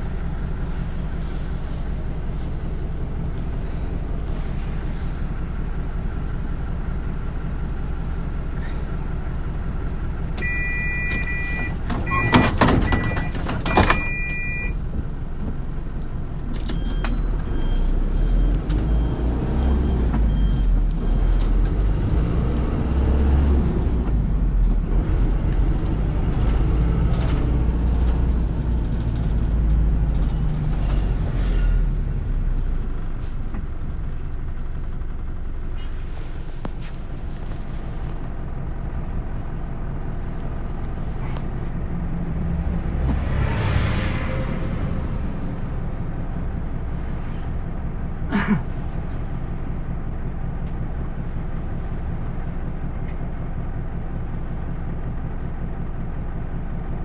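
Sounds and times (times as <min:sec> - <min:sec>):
bus engine accelerating: 0:00.0 - 0:57.0
bus doors closing thuds: 0:10.4 - 0:14.7
bus door warning beeping: 0:10.4 - 0:14.8, 0:16.5 - 0:21.6.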